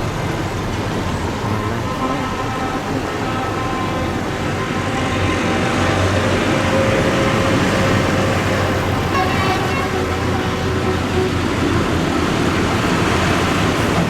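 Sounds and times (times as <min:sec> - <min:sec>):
road noise: 0:00.0 - 0:14.0
tractor engines rumbling: 0:00.0 - 0:14.0.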